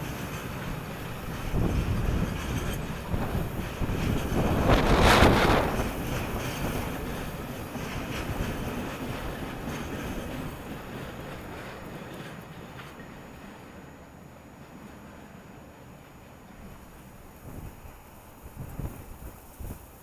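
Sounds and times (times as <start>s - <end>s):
wind buffeting microphone: 0.0s - 13.0s, 17.2s - 20.0s
freight train rumble: 0.0s - 20.0s.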